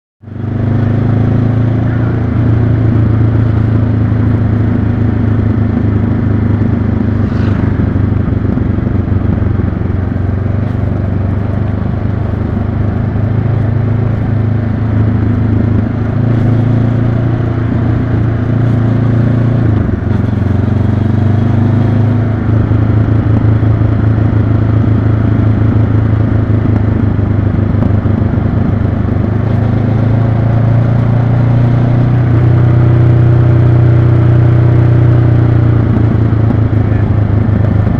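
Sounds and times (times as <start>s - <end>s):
motorcycle engine running: 0.2s - 37.9s.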